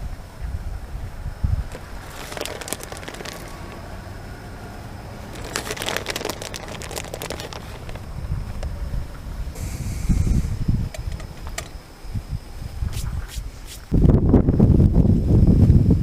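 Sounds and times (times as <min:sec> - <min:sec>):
wind rumbling on microphone: 0:00.0 - 0:16.0
crackling: 0:01.7 - 0:04.0, 0:05.2 - 0:08.8.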